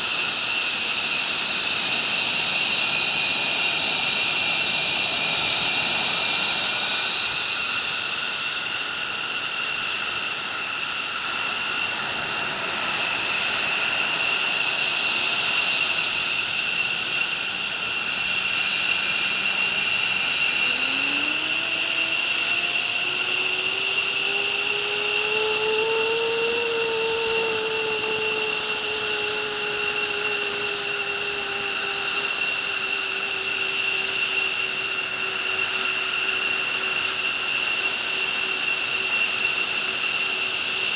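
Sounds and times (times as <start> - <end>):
jet engines whining: 0.0 - 40.9.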